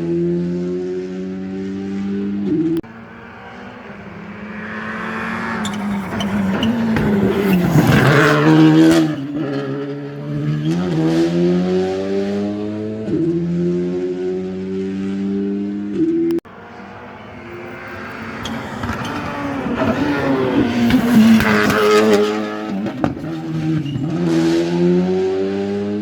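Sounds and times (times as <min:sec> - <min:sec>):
rally car engine passing: 0:00.0 - 0:26.0
gear changes: 0:02.2 - 0:11.4, 0:15.4 - 0:24.5.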